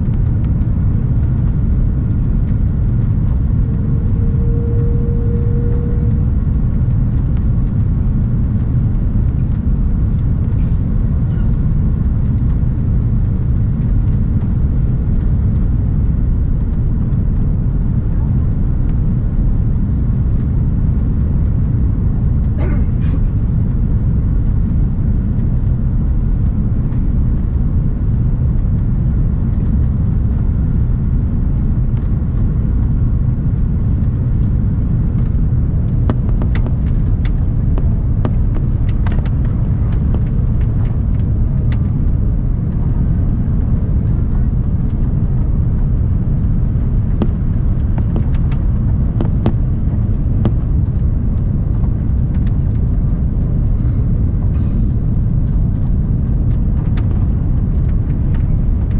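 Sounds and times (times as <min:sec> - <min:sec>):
airliner cabin rumble: 0:00.0 - 0:58.9
sharp clicks and light rattles: 0:33.5 - 0:42.8, 0:46.7 - 0:53.9, 0:55.4 - 0:58.9.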